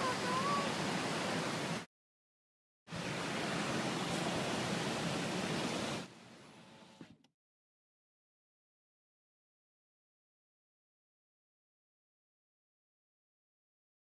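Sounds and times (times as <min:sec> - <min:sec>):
rainstorm water rushing: 0:00.0 - 0:01.9, 0:02.9 - 0:06.6.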